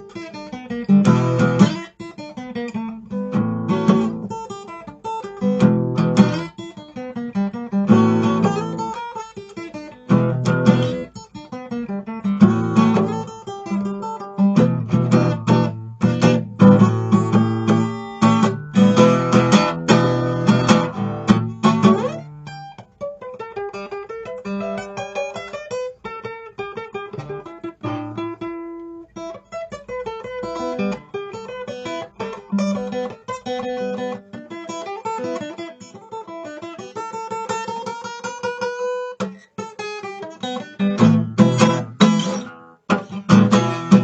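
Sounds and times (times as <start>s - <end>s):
acoustic guitar playing blues: 0.0s - 44.0s.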